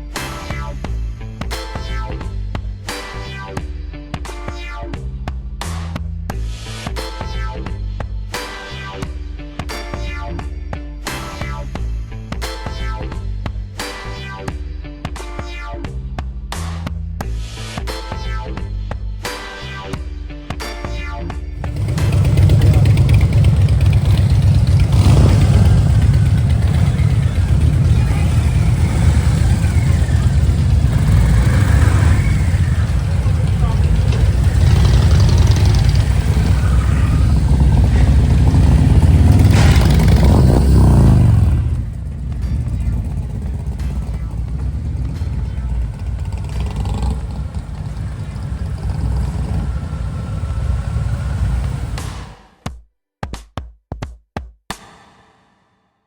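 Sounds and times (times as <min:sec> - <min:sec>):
motorcycle engine idling: 0:21.6 - 0:52.2
motorcycle engine revving: 0:21.6 - 0:52.3.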